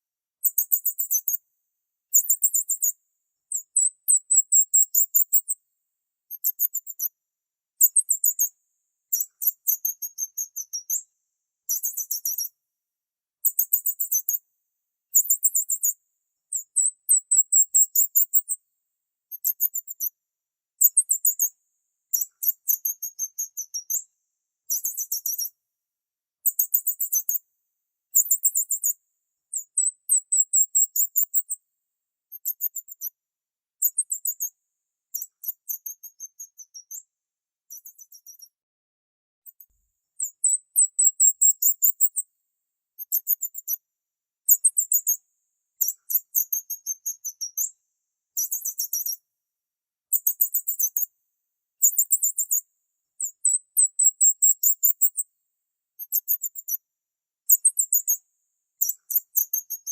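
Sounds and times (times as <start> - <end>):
bird chirping in rapid trills: 11.7 - 12.5, 28.2 - 31.5, 37.7 - 38.5, 40.2 - 42.2, 45.8 - 47.7, 48.4 - 49.2.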